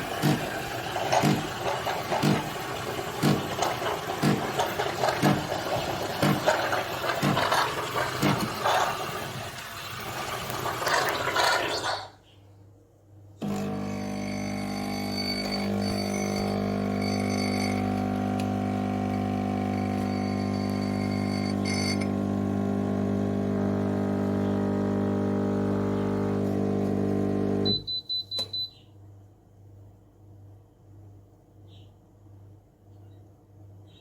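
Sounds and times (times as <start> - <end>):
espresso machine pump humming: 0.0 - 12.0, 13.4 - 27.7.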